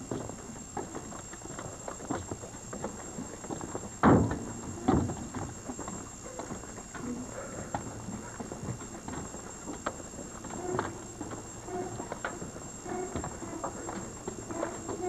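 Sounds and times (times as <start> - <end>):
footsteps walking: 6.3 - 15.0.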